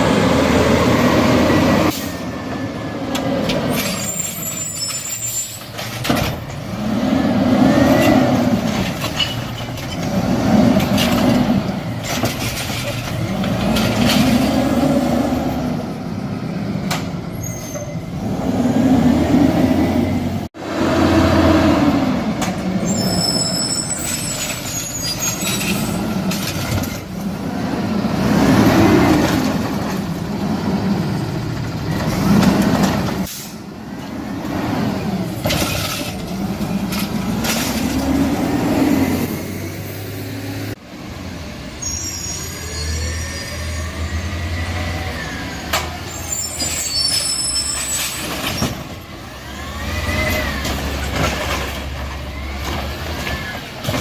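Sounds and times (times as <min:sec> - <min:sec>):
diesel engine revving: 0:00.0 - 0:54.0
hydraulic squeaks and hisses: 0:03.6 - 0:06.0, 0:17.3 - 0:18.2, 0:22.8 - 0:27.1, 0:33.0 - 0:33.7, 0:41.8 - 0:54.0.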